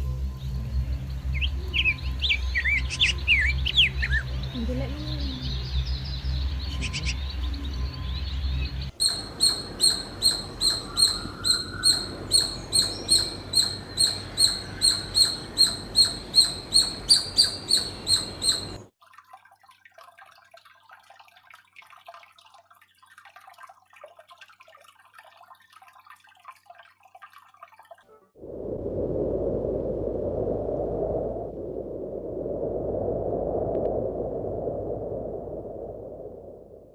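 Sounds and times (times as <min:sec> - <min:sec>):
small bird chirping: 0:00.4 - 0:18.8.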